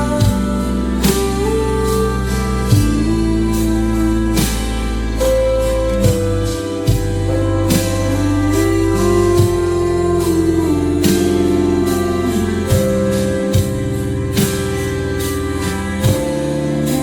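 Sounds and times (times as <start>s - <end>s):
instrumental background music: 0.0s - 17.0s.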